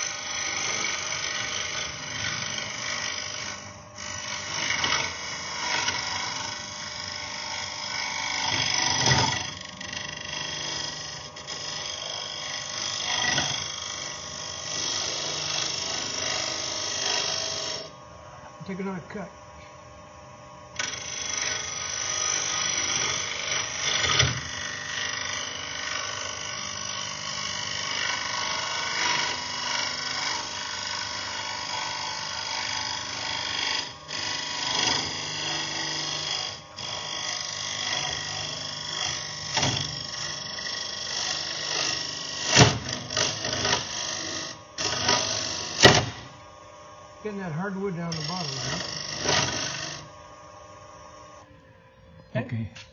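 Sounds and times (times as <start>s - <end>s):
lathe humming: 0.0s - 52.6s
cutting tool scraping wood: 7.0s - 17.9s, 47.4s - 50.2s.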